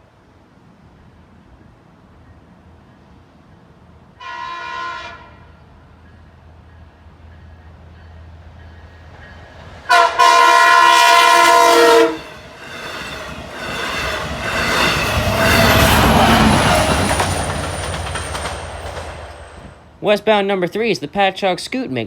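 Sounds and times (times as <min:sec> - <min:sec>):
train rumbling past: 0:00.0 - 0:20.4
train horn: 0:04.2 - 0:05.7, 0:09.9 - 0:12.4.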